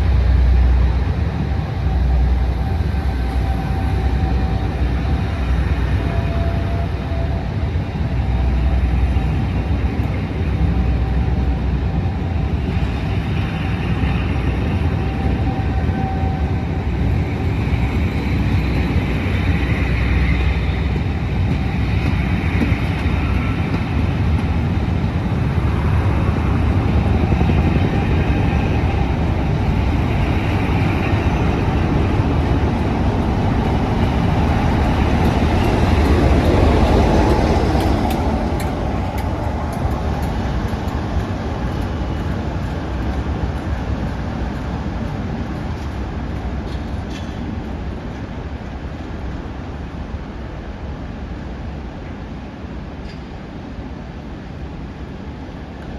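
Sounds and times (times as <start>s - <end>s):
diesel locomotives working hard: 0.0s - 55.9s.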